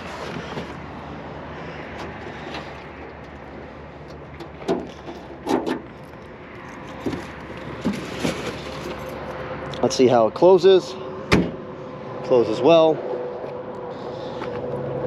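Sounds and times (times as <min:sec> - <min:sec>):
metal clunks of car body: 0:04.5 - 0:05.9, 0:11.3 - 0:11.6.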